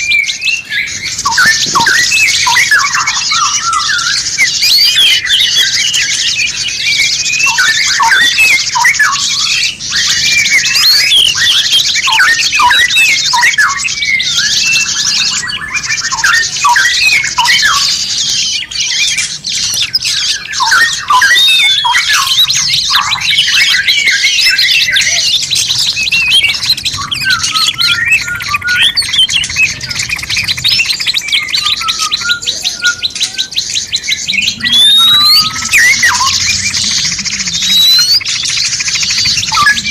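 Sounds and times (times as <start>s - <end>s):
songbirds chirping and whistling: 0.0s - 39.9s
bird rattling trill: 34.8s - 39.9s.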